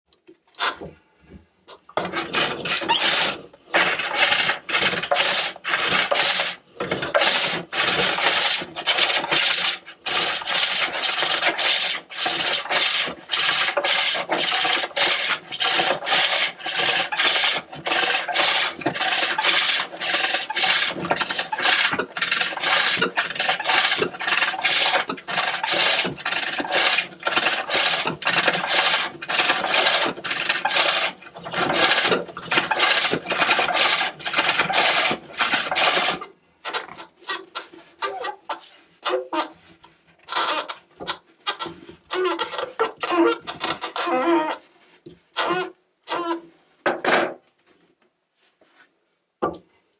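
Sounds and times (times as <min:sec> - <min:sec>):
hook tool rasping on wood: 0:02.0 - 0:38.7.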